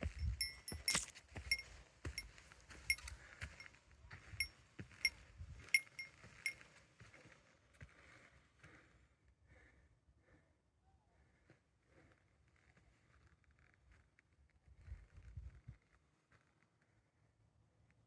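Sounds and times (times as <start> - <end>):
small metal bell clinking: 0.0 - 2.3, 2.9 - 3.1, 5.8 - 6.6.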